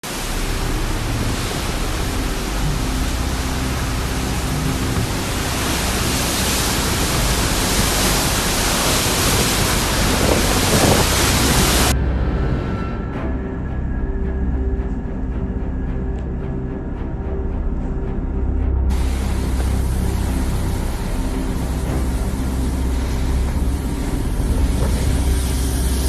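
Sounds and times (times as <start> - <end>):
heavy rain: 0.0 - 12.0, 18.9 - 26.0
strong wind rushing: 0.0 - 13.4, 18.9 - 26.0.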